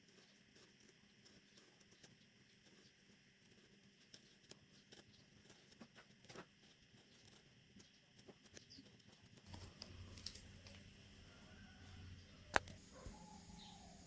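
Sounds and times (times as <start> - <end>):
faint low hum: 0.0 - 14.0
faint clicks: 12.5 - 14.0.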